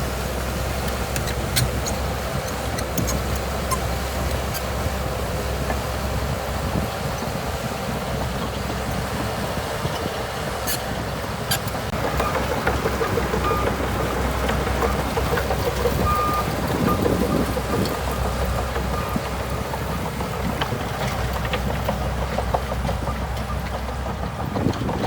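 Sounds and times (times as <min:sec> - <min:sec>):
bulldozer diesel engine running: 0:00.0 - 0:25.0
short high squeaks: 0:01.1 - 0:04.7, 0:10.6 - 0:10.9.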